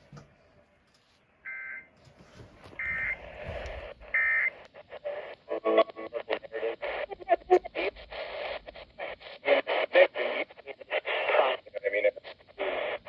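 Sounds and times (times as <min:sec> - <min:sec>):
radio static crackling: 0:02.6 - 0:13.0.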